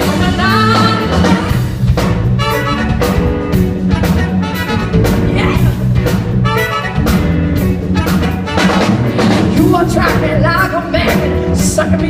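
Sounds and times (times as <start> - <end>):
bass: 0.0 - 12.0
drum kit steady beat: 0.0 - 12.0
horn section playing riffs: 2.3 - 9.5.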